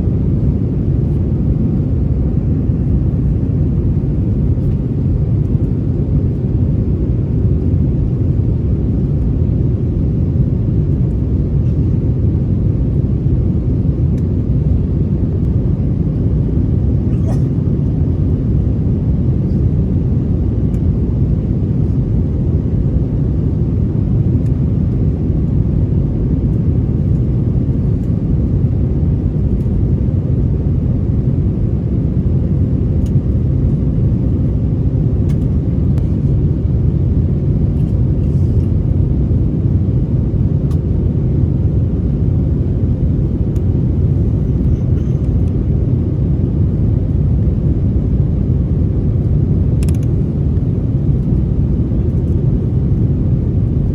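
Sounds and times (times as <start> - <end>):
airplane cabin engine rumble: 0.0 - 53.9.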